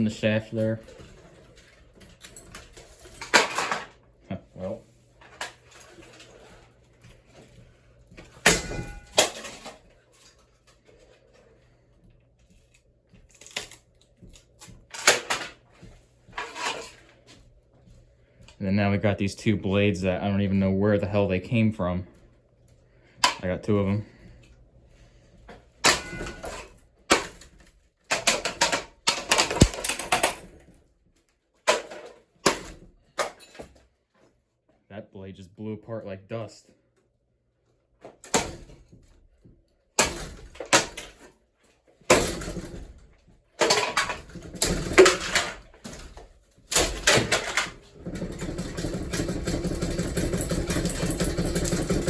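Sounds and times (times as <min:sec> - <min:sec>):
parts knocking and clattering: 0:00.0 - 0:04.0, 0:08.1 - 0:10.4, 0:13.3 - 0:17.0, 0:25.5 - 0:30.7, 0:31.6 - 0:33.8, 0:42.0 - 0:52.0.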